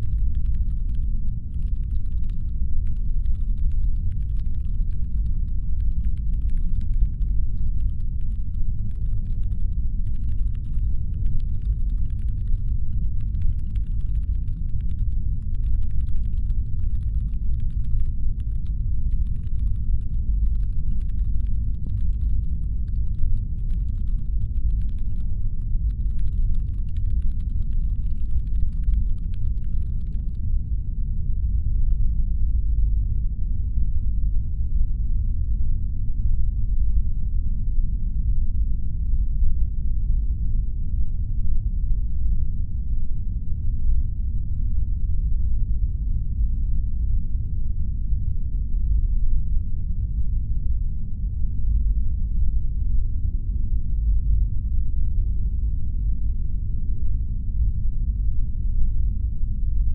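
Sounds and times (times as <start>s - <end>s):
faint rapid light clicks: 0.0s - 30.6s
deep engine hum rumble: 0.0s - 34.7s.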